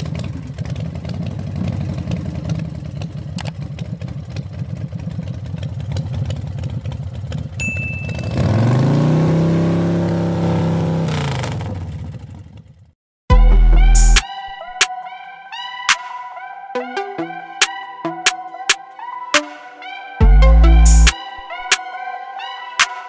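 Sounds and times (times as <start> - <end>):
engine idling and revving: 0.0 - 14.2
short high beep: 7.6 - 8.4.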